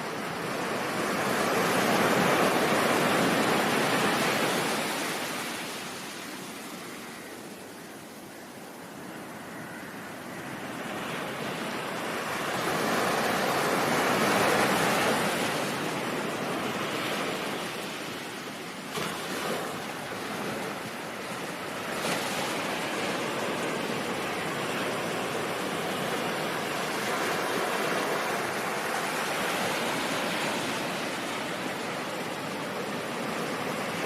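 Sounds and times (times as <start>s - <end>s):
ocean surf washing in: 0.0s - 7.0s, 9.3s - 34.0s.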